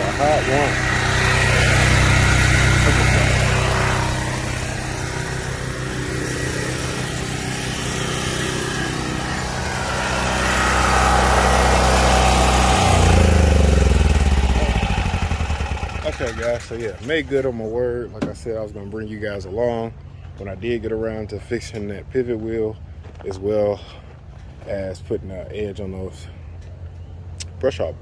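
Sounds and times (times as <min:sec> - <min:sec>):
tractor engine running: 0:00.0 - 0:18.5.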